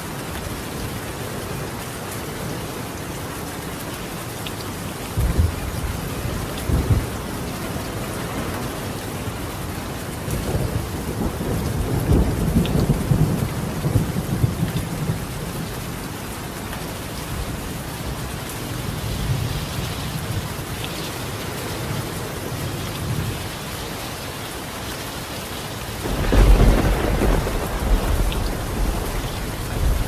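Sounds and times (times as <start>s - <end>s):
rain on a tiled roof: 0.0s - 30.0s
thunder rumbling: 26.0s - 30.0s.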